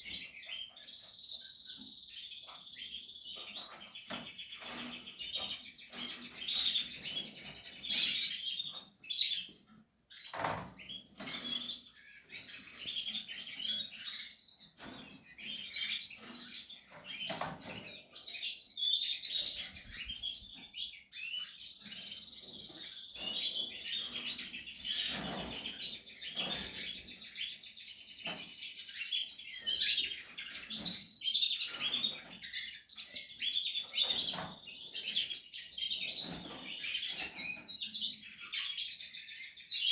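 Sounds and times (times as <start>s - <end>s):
canaries chirping and warbling: 0.0s - 39.9s
birds rustling in cage: 3.6s - 14.0s, 21.8s - 27.2s.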